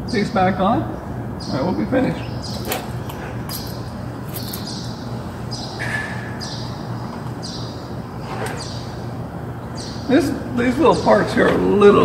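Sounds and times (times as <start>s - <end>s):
steady low hum: 0.0s - 12.0s
small bird chirping: 1.4s - 9.0s, 9.6s - 10.1s.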